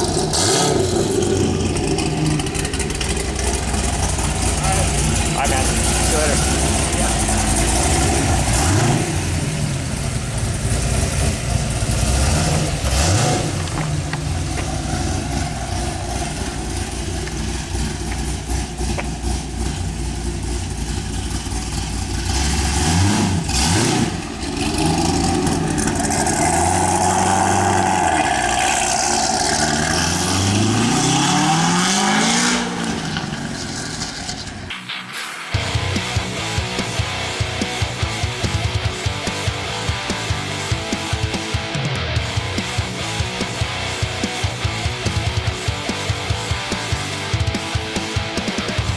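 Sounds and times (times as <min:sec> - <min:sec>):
car engine idling and revving: 0:00.0 - 0:48.9.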